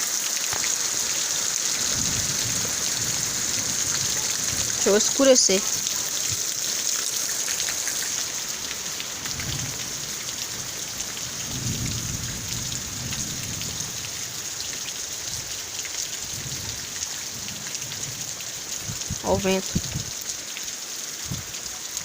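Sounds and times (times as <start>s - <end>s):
heavy rain falling: 0.0s - 22.0s
thunder rumbling: 1.8s - 6.5s, 8.4s - 14.5s, 16.3s - 20.1s.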